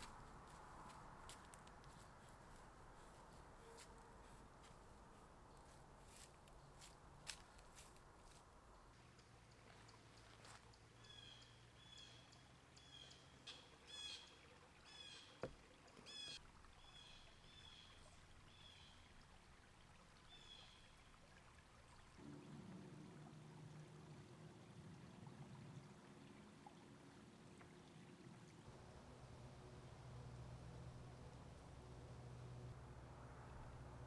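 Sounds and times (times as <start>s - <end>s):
faint low hum: 22.2s - 34.0s.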